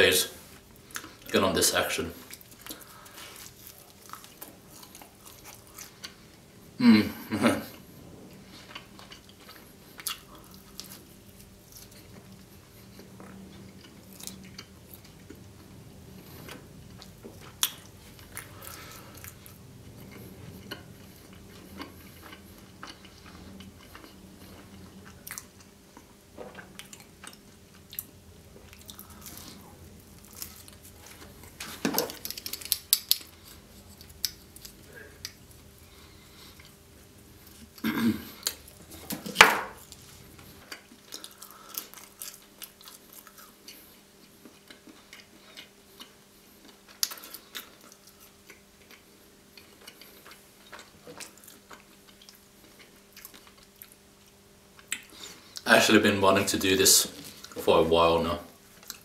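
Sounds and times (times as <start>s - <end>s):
faint low hum: 0.0s - 59.0s
person chewing and biting: 2.3s - 6.4s, 8.6s - 55.6s.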